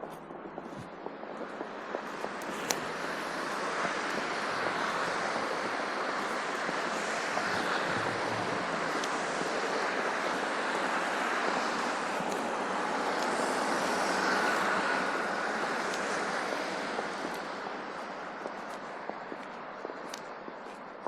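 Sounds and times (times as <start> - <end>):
rushing street noise: 0.0 - 21.0.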